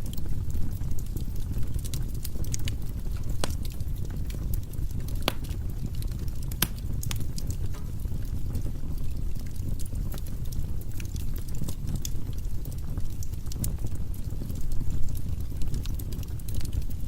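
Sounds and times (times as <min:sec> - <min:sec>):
fire rumbling: 0:00.0 - 0:17.0
firewood crackling and popping: 0:00.0 - 0:17.0.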